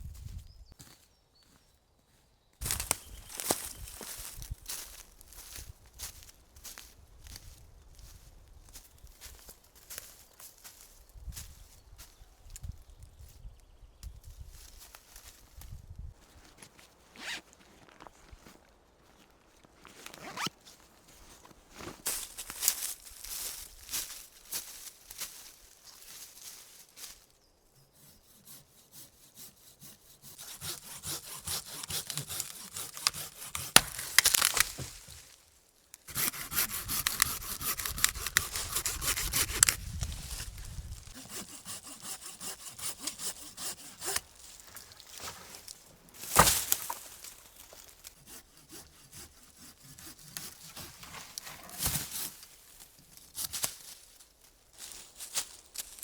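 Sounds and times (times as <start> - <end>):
hand saw cutting wood: 27.8 - 35.2, 36.0 - 52.6.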